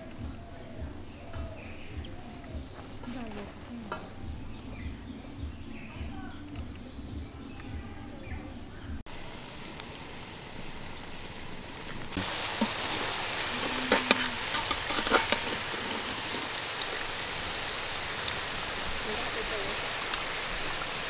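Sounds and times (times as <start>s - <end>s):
fries sizzling in hot oil: 9.1s - 21.0s
metal spatula scraping a pan: 12.6s - 17.1s.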